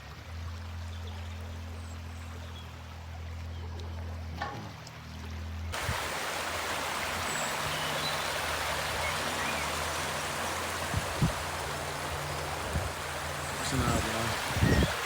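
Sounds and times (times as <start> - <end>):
brook water rushing: 5.7 - 15.0
faint bird chirps: 7.0 - 10.4.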